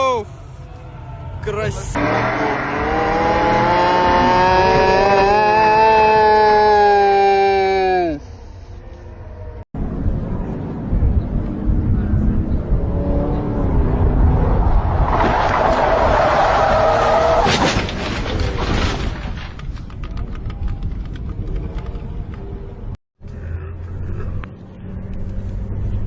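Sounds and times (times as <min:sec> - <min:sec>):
car crash: 0:14.8 - 0:19.6
clicking and rattling: 0:17.7 - 0:22.4.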